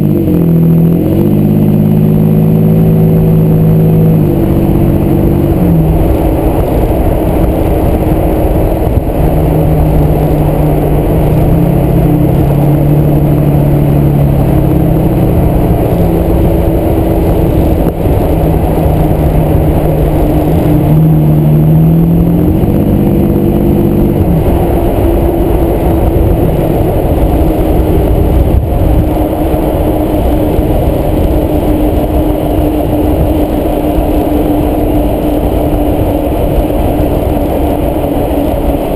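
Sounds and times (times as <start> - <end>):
road rumble: 0.0 - 38.9
truck engine: 0.0 - 38.9.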